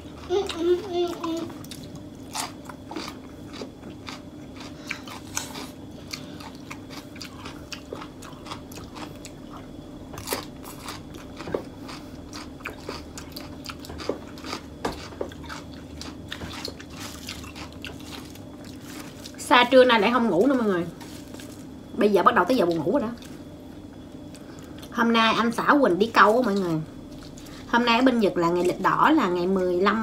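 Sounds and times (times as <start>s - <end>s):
steady low hum: 0.0s - 30.0s
crunchy chewing: 0.1s - 19.5s, 20.4s - 25.0s.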